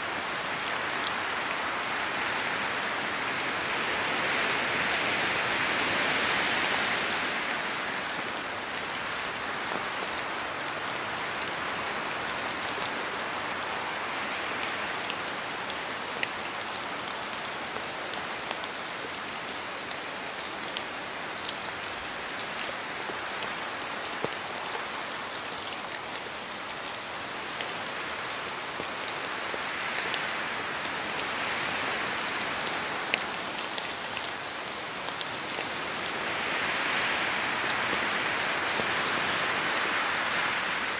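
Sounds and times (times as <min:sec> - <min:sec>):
steady rain falling: 0:00.0 - 0:40.9
wind gusts: 0:34.8 - 0:40.9.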